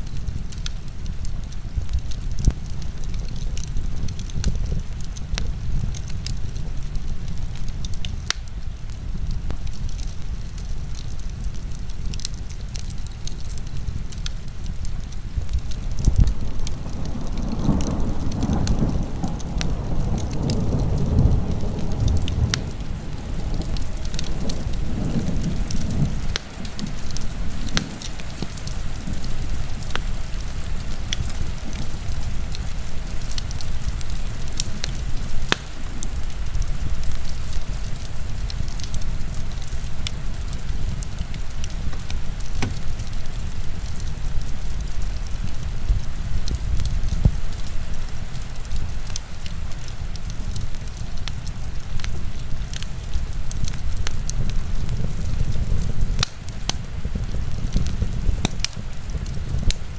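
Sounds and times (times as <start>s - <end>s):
heavy rain: 0.0s - 59.9s
wood fire crackling: 0.0s - 59.9s
low rumble: 0.4s - 44.4s.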